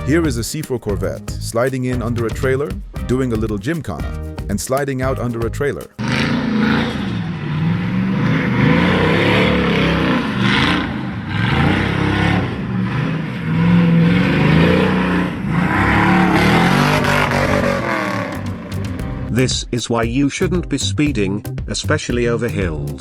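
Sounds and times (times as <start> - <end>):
car engine revving: 6.0 - 19.4.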